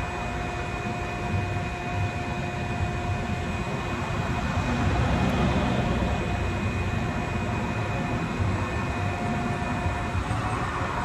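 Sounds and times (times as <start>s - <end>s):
machinery humming: 0.0s - 11.0s
whining tones: 0.0s - 11.0s.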